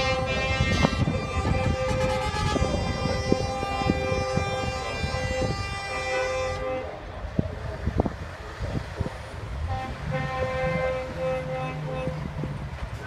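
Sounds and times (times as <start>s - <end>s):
horn-like drone: 0.0s - 7.2s, 9.6s - 12.5s.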